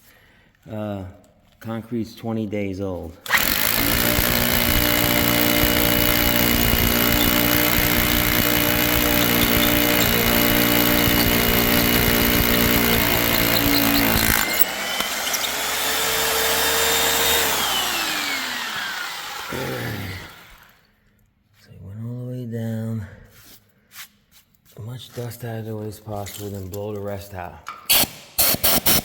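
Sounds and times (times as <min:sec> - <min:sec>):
rotary hammer drilling into concrete: 0:03.3 - 0:20.8, 0:27.9 - 0:29.0.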